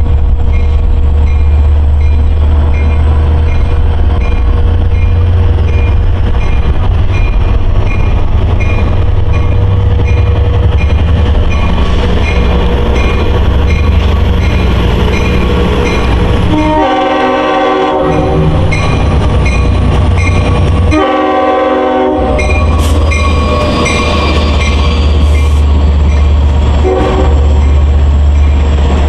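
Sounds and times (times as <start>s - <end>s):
train rumbling past: 0.0s - 29.0s
train horn blasts: 16.4s - 18.6s, 20.9s - 22.9s, 26.8s - 27.5s.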